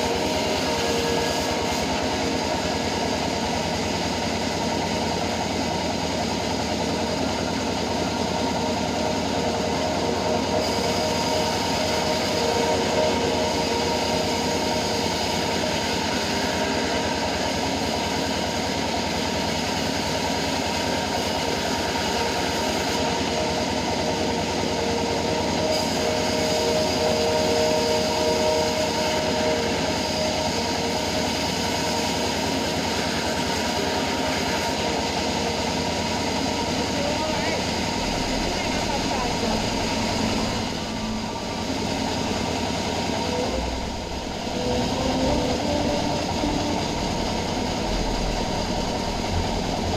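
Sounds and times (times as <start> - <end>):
bandsaw running: 0.0 - 4.4, 5.0 - 49.9
whining tone: 38.0 - 49.9.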